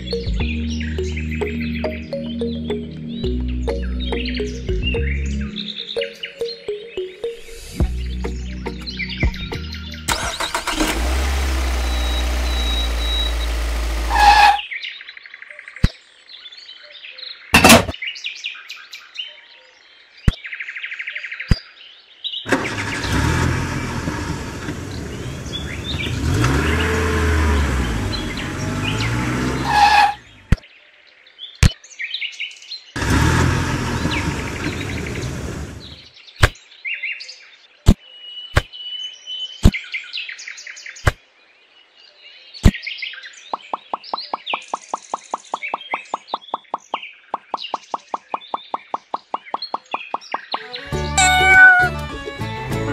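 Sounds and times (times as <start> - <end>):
birds chirping: 0.0 - 18.9, 21.3 - 30.6, 32.9 - 37.0, 41.8 - 52.9
tractor engine running: 10.1 - 14.6, 17.6 - 17.9, 22.5 - 30.5, 33.0 - 36.0.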